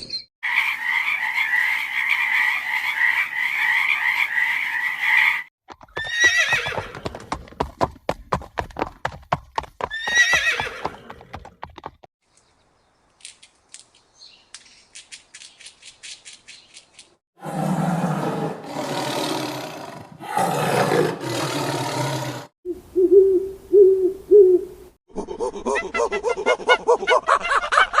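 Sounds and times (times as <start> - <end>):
large animal roaring: 17.4 - 22.5.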